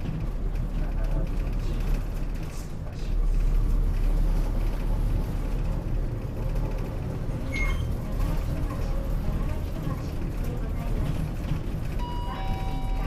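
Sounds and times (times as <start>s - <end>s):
bus engine and road rumble: 0.0s - 13.0s
short high beep: 12.0s - 13.0s.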